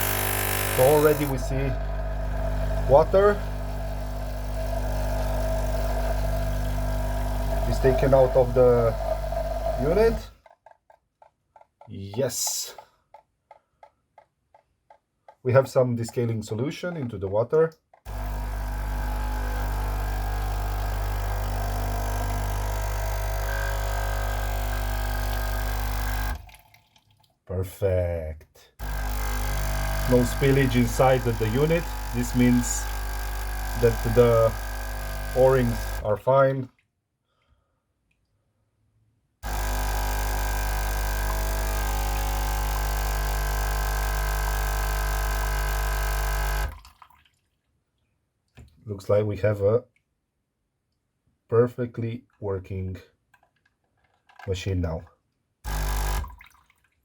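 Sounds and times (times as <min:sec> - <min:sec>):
coffee machine pump buzzing: 0:00.0 - 0:10.3, 0:18.1 - 0:26.5, 0:28.8 - 0:36.2, 0:39.4 - 0:46.8, 0:55.7 - 0:56.3.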